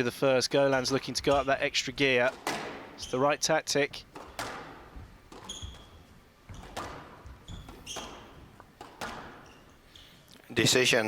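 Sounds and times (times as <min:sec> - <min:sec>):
shoes squeaking on court floor: 0:00.9 - 0:01.8, 0:02.4 - 0:03.4, 0:04.1 - 0:10.2
squash ball striking racket and walls: 0:00.9 - 0:03.2, 0:04.0 - 0:10.0.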